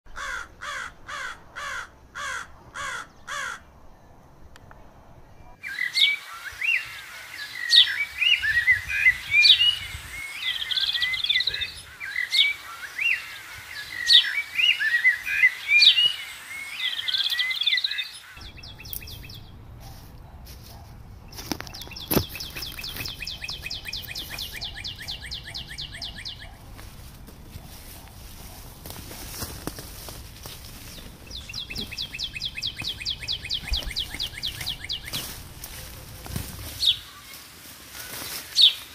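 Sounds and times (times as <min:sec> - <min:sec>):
harsh bird calls: 0:00.1 - 0:03.8, 0:05.6 - 0:19.7, 0:21.2 - 0:26.7, 0:28.8 - 0:37.4
birds chirping and whistling: 0:05.4 - 0:20.0, 0:21.2 - 0:26.8, 0:30.4 - 0:37.4, 0:38.0 - 0:38.9
fast bird trill: 0:21.7 - 0:26.6, 0:31.2 - 0:35.3.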